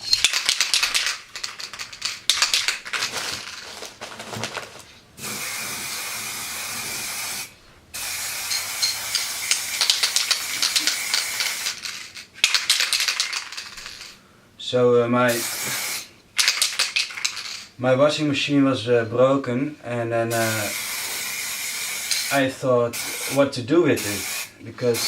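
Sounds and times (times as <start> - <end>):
spray can ball rattling: 0.0 - 14.2, 15.4 - 17.7, 20.4 - 22.4
spray paint hissing: 5.2 - 14.1, 15.3 - 17.5, 20.3 - 23.4, 24.0 - 25.0.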